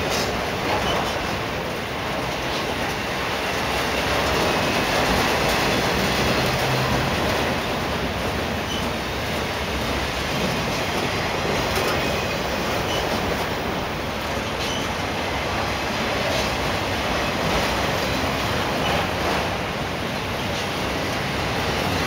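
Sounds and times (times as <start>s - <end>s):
freight train wheels rumbling: 0.0s - 22.0s
high wheel squeaks: 0.2s - 1.3s, 8.5s - 9.2s, 11.6s - 13.7s, 14.3s - 15.1s.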